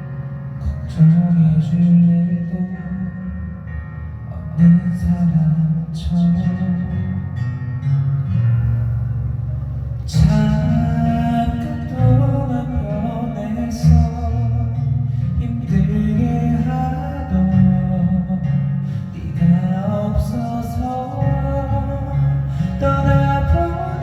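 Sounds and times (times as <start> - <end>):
guitar accompaniment: 0.0 - 24.0
person singing: 10.1 - 24.0.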